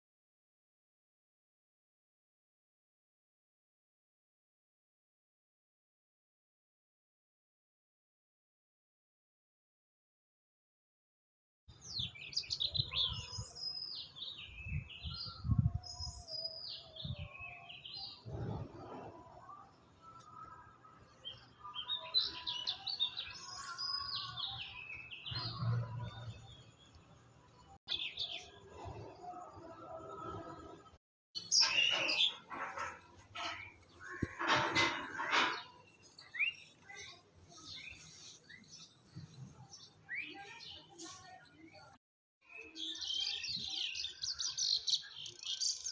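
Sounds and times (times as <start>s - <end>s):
songbird singing: 11.7s - 19.2s, 20.0s - 28.6s, 31.4s - 45.9s
bird calls: 31.4s - 41.3s.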